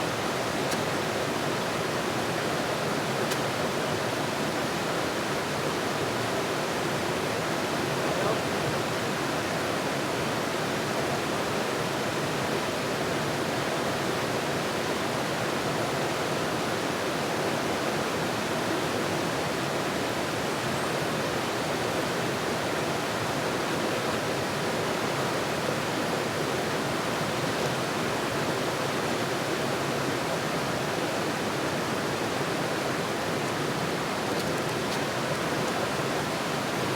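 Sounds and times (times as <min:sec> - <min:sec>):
flowing water rushing: 0:24.4 - 0:36.9.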